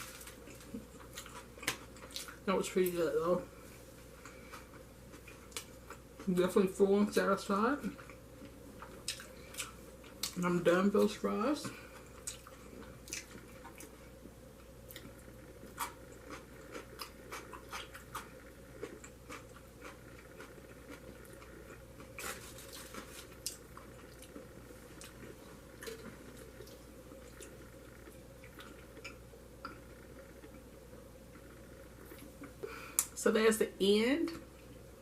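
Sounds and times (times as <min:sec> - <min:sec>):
person chewing food: 0:00.0 - 0:02.4, 0:04.0 - 0:06.3, 0:07.9 - 0:10.4, 0:11.6 - 0:30.7.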